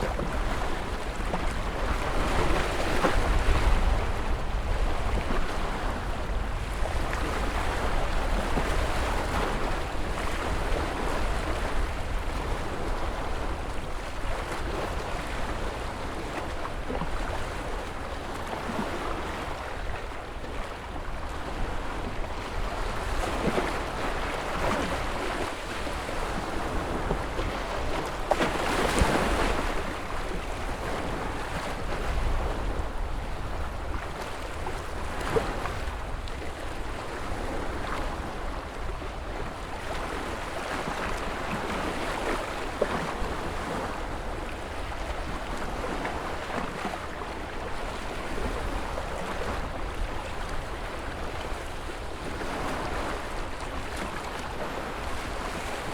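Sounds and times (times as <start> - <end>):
ocean waves breaking: 0.0 - 55.9.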